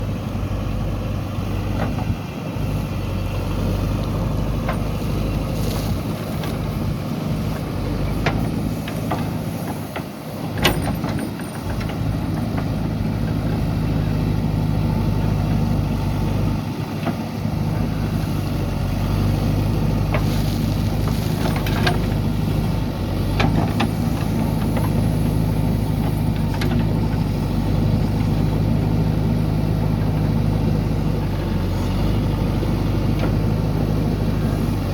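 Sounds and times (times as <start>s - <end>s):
diesel engine running: 0.0s - 34.9s
machine knocks and clanks: 7.5s - 13.7s, 19.6s - 28.6s.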